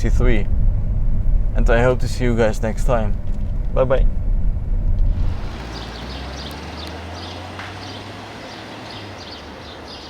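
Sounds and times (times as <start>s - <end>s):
car engine idling: 0.0s - 8.0s
bird chirping: 5.2s - 10.0s.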